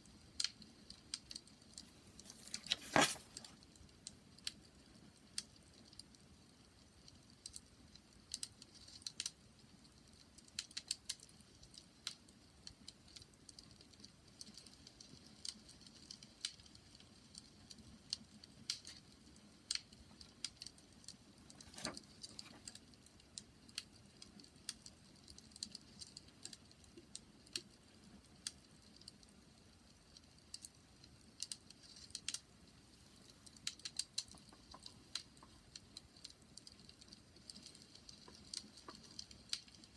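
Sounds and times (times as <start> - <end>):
wood fire crackling: 15.3 - 39.9.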